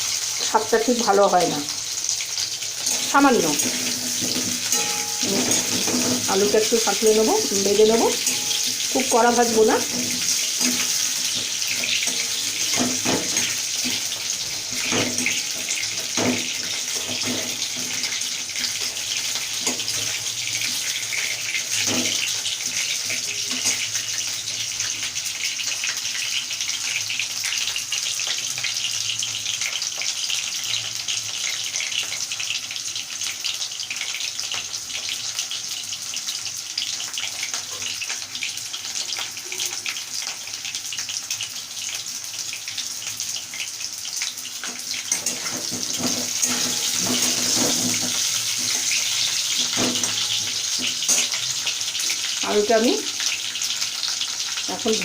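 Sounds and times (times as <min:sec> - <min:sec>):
potatoes sizzling in hot oil: 0:00.0 - 0:55.0
knocks against pan: 0:49.7 - 0:50.4.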